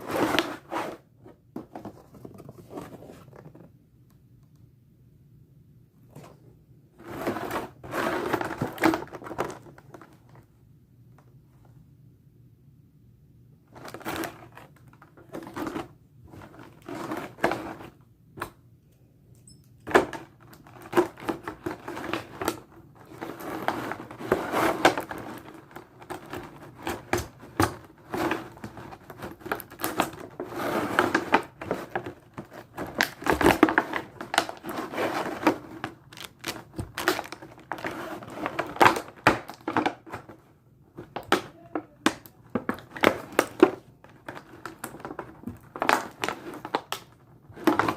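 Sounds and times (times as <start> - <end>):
packaging clicks and crinkling: 19.9 - 40.4, 41.0 - 47.9.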